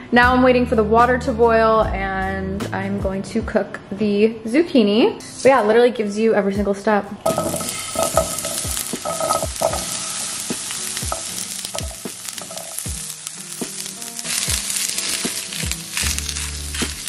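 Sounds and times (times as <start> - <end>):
spatula stirring in pan: 7.3 - 17.0
zucchini sizzling in frying pan: 7.3 - 17.0.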